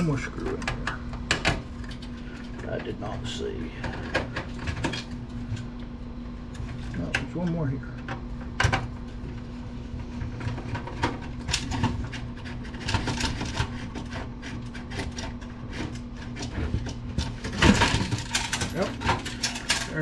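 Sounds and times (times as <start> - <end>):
steady low hum: 0.0 - 20.0
computer parts clicking and knocking: 10.4 - 20.0.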